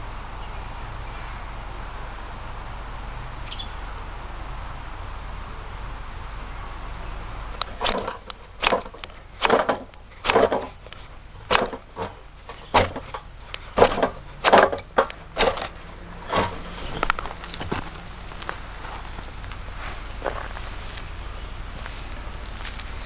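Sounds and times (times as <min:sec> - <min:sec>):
twigs crunching and snapping: 0:07.6 - 0:21.1.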